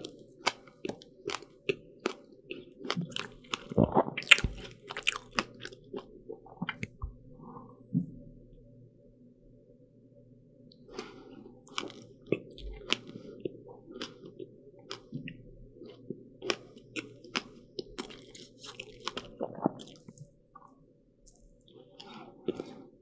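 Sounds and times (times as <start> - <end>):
chewing crisp pastry: 0.0 - 7.0, 10.8 - 23.0.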